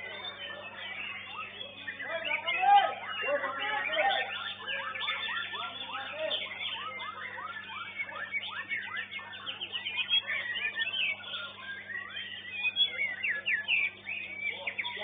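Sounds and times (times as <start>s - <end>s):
songbirds singing: 0.0s - 15.0s.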